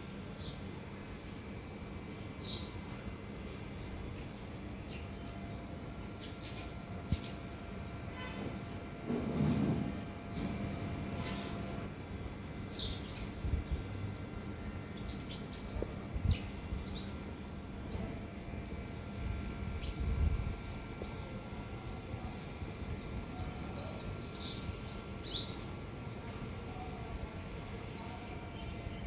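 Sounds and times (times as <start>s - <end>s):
small birds chirping: 0.2s - 7.6s, 10.3s - 18.4s, 19.0s - 25.8s.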